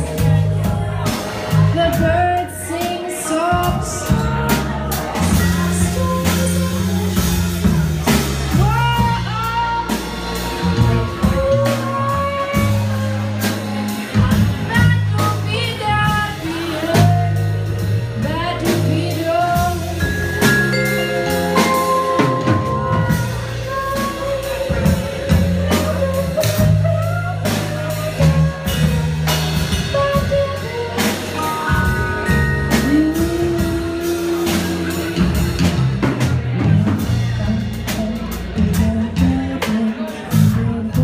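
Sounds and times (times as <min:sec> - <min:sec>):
bass line: 0:00.0 - 0:41.0
drum kit: 0:00.0 - 0:41.0
sliding melodic lead line: 0:14.6 - 0:39.8.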